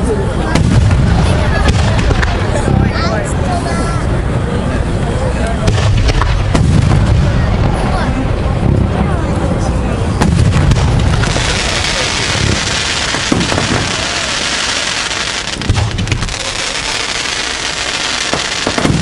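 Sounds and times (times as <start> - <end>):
crackling hiss of fireworks: 0.0 - 19.0
firework shells booming: 0.5 - 2.8, 5.6 - 9.0, 10.1 - 19.0.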